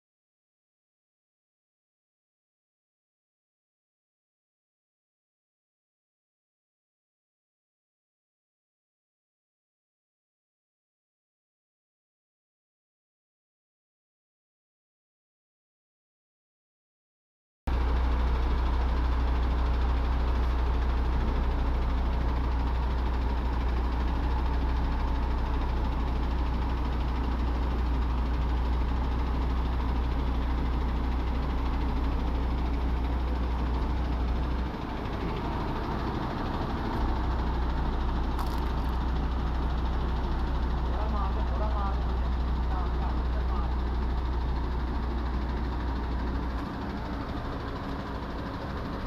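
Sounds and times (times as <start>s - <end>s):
truck diesel engine idling: 17.7s - 49.0s.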